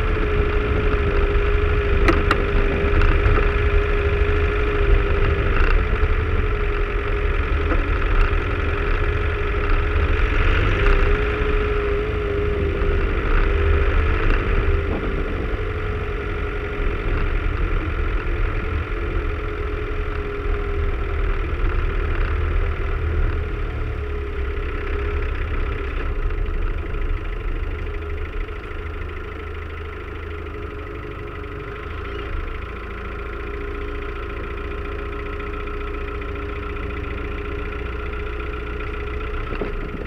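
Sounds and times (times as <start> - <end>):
car engine running at low speed: 0.0 - 40.0
steady whine: 0.0 - 40.0.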